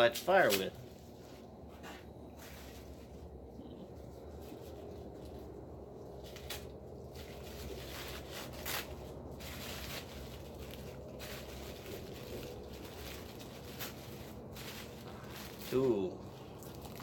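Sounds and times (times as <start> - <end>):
paper rustling and crinkling: 6.2 - 17.0.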